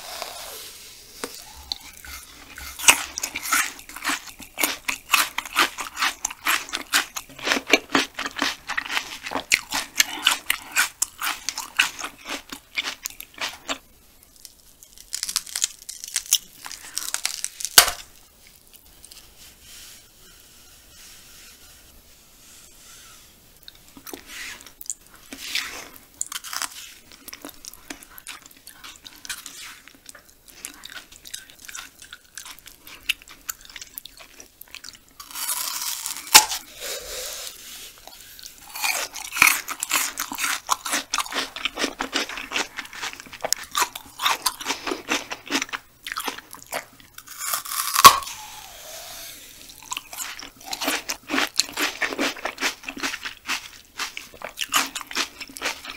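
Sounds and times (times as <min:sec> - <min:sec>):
chewing with wet crunches: 0:01.4 - 0:13.8, 0:38.7 - 0:48.2, 0:49.8 - 0:55.9.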